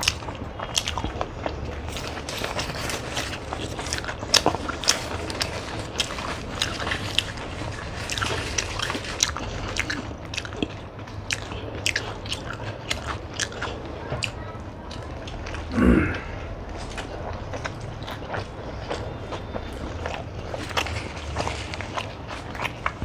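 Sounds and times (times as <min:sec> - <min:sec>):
people biting and chewing: 0:00.0 - 0:23.0
paper wrappers rustling: 0:01.8 - 0:09.7, 0:20.4 - 0:23.0.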